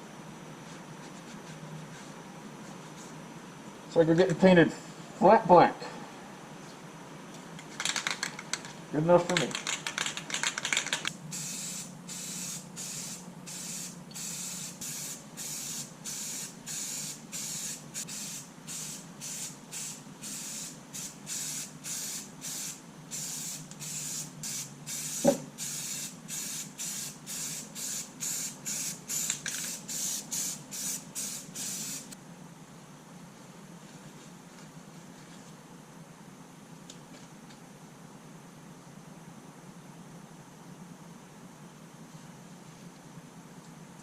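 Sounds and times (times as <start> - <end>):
spray can hissing in bursts: 10.9 - 32.2.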